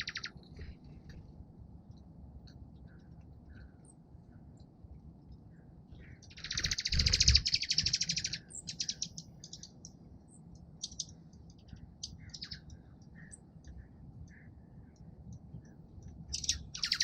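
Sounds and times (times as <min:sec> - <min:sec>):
songbird chattering trill: 0:00.0 - 0:00.5, 0:06.0 - 0:17.0.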